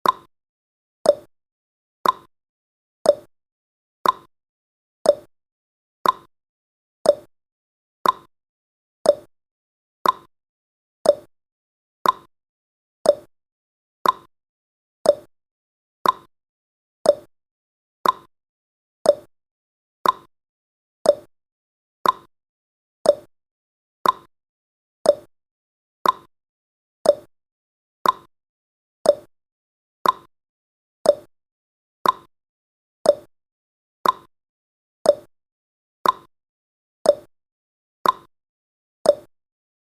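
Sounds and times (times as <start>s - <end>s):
timer ticking: 0.0s - 0.3s, 1.1s - 1.3s, 2.0s - 2.3s, 3.1s - 3.3s, 4.0s - 4.3s, 5.1s - 5.3s, 6.0s - 6.3s, 7.1s - 7.3s, 8.0s - 8.3s, 9.0s - 9.3s, 10.0s - 10.3s, 11.0s - 11.3s, 12.0s - 12.3s, 13.0s - 13.3s, 14.0s - 14.3s, 15.0s - 15.3s, 16.0s - 16.3s, 17.0s - 17.3s, 18.0s - 18.3s, 19.0s - 19.3s, 20.0s - 20.3s, 21.0s - 21.3s, 22.0s - 22.3s, 23.0s - 23.3s, 24.0s - 24.3s, 25.0s - 25.3s, 26.0s - 26.3s, 27.0s - 27.3s, 28.0s - 28.3s, 29.0s - 29.3s, 30.0s - 30.3s, 31.0s - 31.3s, 32.0s - 32.3s, 33.0s - 33.3s, 34.0s - 34.3s, 35.1s - 35.3s, 36.0s - 36.3s, 37.1s - 37.3s, 38.0s - 38.3s, 39.1s - 39.3s.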